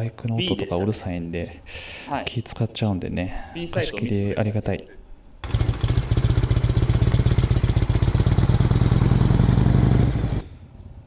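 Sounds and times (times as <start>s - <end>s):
motorcycle engine running: 5.4s - 10.5s.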